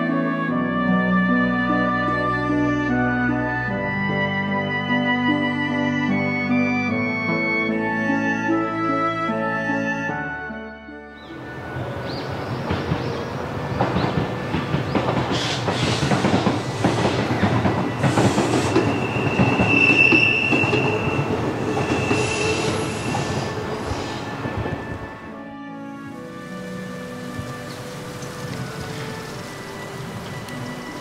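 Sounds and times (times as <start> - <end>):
train wheels rumbling and clicking: 11.4 - 25.2, 26.5 - 31.0
high wheel squeal: 15.3 - 24.5.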